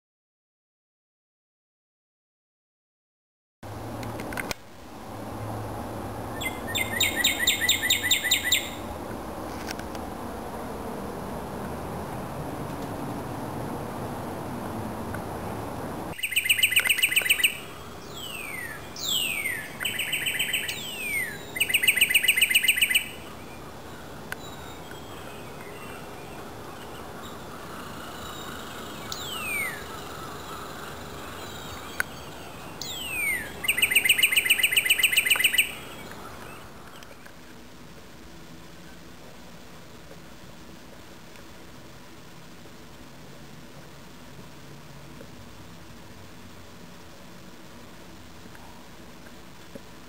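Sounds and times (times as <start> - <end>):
songbird singing: 6.0 - 9.0, 16.1 - 39.1.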